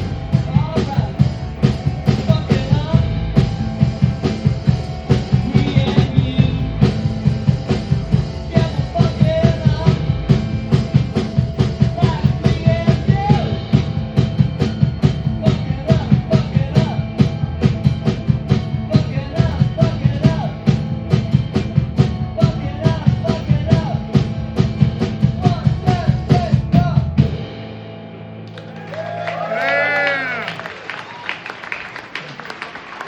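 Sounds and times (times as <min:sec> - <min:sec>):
drum kit steady beat: 0:00.0 - 0:27.6
rock band playing live: 0:00.0 - 0:30.6.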